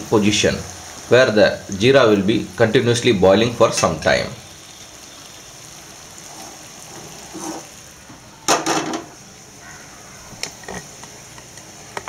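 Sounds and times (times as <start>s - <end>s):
metal pot clanking on stove grate: 8.5s - 9.1s.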